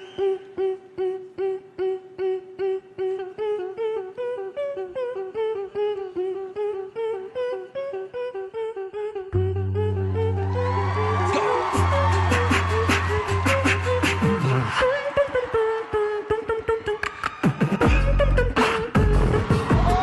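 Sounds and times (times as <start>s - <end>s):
a cappella group humming: 0.0s - 20.0s.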